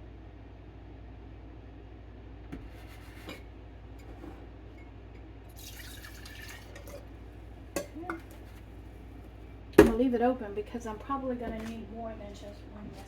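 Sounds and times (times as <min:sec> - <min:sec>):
liquid pouring splash: 0:05.5 - 0:07.1.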